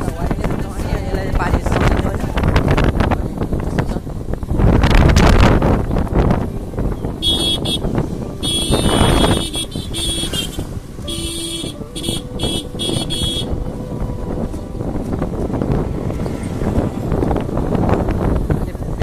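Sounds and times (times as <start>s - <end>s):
vehicle rumble and road noise: 0.0s - 19.0s
vehicle horn tooting: 7.1s - 17.2s.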